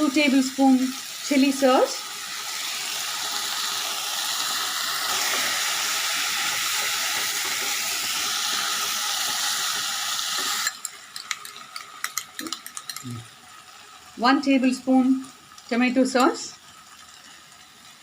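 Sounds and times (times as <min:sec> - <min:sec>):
sausage sizzling in a frying pan: 0:00.0 - 0:18.0
stirring in the pan: 0:05.1 - 0:14.1, 0:15.4 - 0:18.0.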